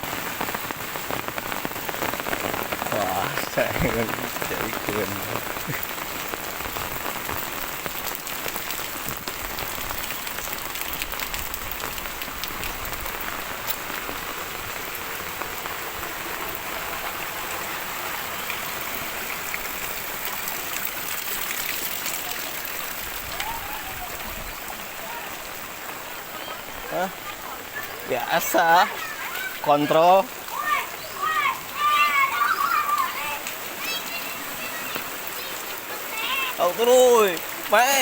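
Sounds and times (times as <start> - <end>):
heavy rain hissing: 0.0 - 38.0
raindrops ticking on surfaces: 0.0 - 38.0.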